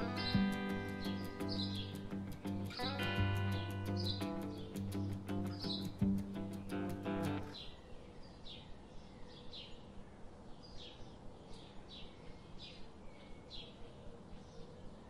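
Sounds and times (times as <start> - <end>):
faint bird chirping: 0.0 - 15.0.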